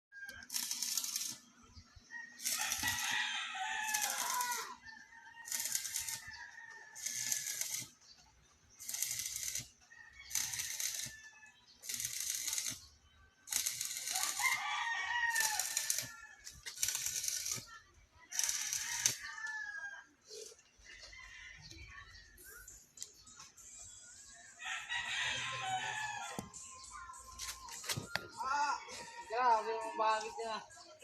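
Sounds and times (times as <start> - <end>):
rhythmic harsh scraping: 0.3 - 1.5, 3.8 - 4.8, 5.5 - 6.3, 7.0 - 8.0, 8.8 - 11.1, 11.8 - 12.8, 13.5 - 14.6, 15.3 - 17.7
rooster crowing: 2.2 - 7.8, 14.0 - 16.5, 24.6 - 26.4.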